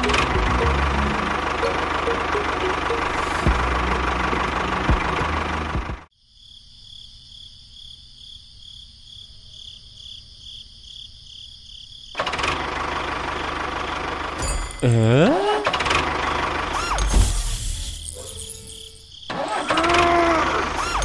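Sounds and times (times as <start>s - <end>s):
small engine running: 0.0s - 6.1s, 12.2s - 21.0s
insects chirping: 6.1s - 12.2s, 16.8s - 19.6s.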